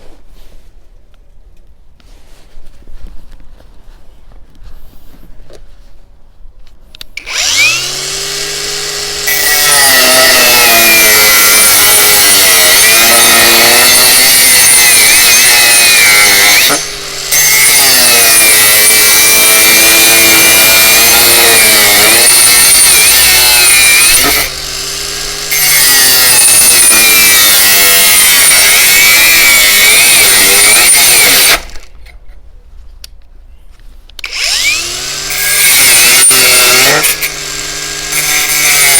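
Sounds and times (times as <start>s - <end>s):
angle grinder whining: 7.2s - 31.9s, 34.2s - 38.9s.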